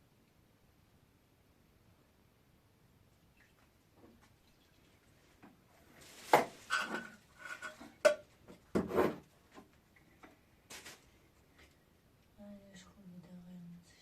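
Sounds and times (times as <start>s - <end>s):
objects rubbing and scraping: 5.8s - 8.1s, 8.7s - 9.4s
objects knocking: 6.2s - 9.2s.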